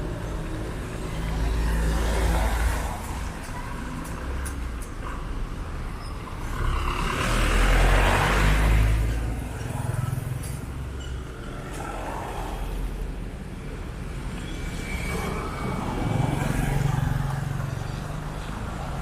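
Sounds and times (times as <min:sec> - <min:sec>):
road traffic rumble: 0:00.0 - 0:19.0
vehicle passing close: 0:06.4 - 0:09.1.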